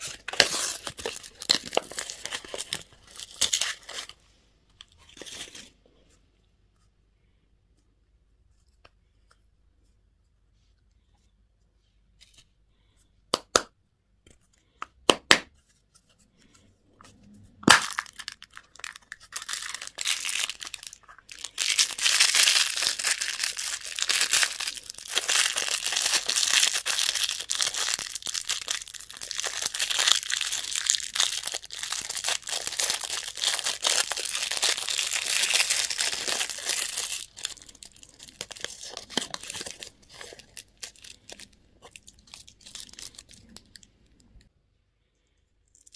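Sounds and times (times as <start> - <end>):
candy wrapper crinkling and tearing: 0.0 - 4.2, 17.6 - 44.4, 45.6 - 45.9.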